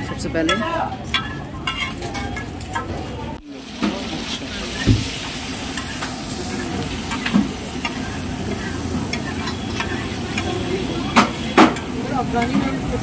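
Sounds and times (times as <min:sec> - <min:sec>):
oil sizzling on a griddle: 0:00.0 - 0:13.0
spatula scraping metal: 0:00.5 - 0:02.5.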